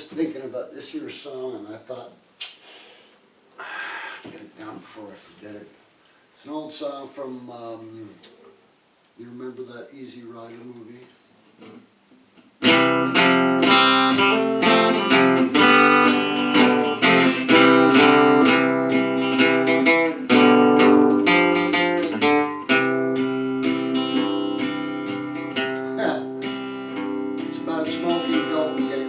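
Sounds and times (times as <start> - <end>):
acoustic guitar strumming chords: 12.6 - 29.0.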